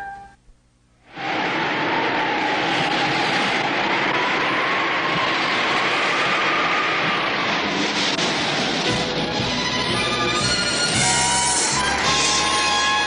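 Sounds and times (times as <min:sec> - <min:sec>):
faint whistling tone: 0:00.0 - 0:00.4
strong wind rushing: 0:01.1 - 0:13.0.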